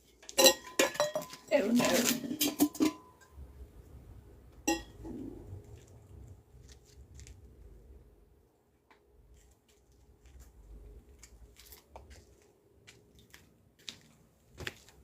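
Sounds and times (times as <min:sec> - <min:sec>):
hard objects clinking: 0:00.2 - 0:03.2
faint low rumble: 0:03.2 - 0:13.5.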